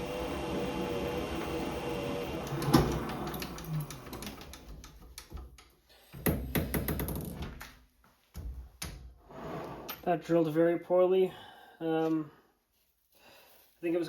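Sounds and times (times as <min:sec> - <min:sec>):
lathe running down: 0:00.0 - 0:04.5.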